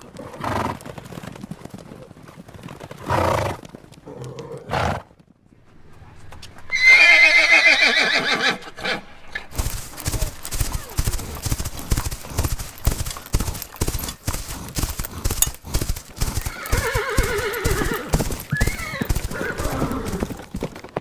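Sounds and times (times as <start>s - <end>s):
hooves clip-clopping: 0.0s - 21.0s
horse whinnying: 3.0s - 5.1s, 6.6s - 12.4s, 16.2s - 20.6s
horse blowing breaths: 3.0s - 20.8s.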